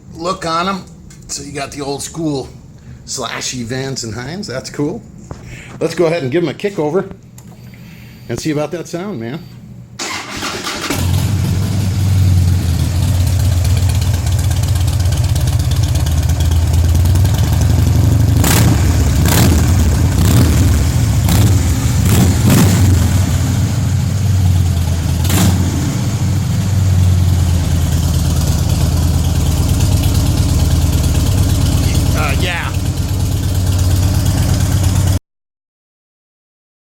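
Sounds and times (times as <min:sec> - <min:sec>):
sharp exhaust cracks: 0:10.0 - 0:35.2
motorcycle engine idling: 0:11.1 - 0:35.2.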